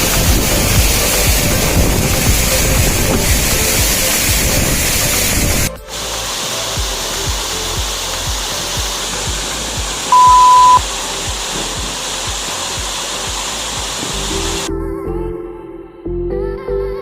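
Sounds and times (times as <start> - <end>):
waterfall rushing: 0.0 - 14.7
soft music beat: 0.0 - 17.0
loud high beep: 10.1 - 10.8.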